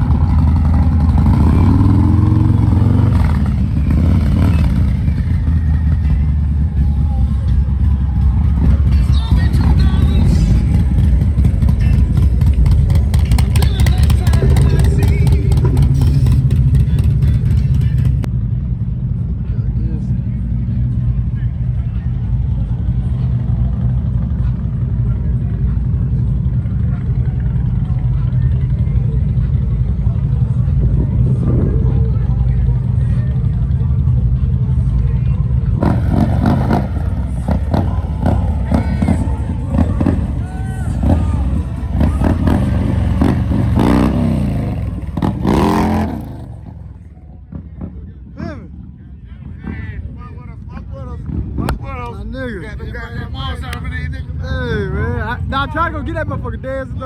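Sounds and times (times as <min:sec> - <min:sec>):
motorcycle engine revving: 0:00.0 - 0:18.3, 0:35.7 - 0:48.1
wind noise on microphone: 0:30.8 - 0:32.4.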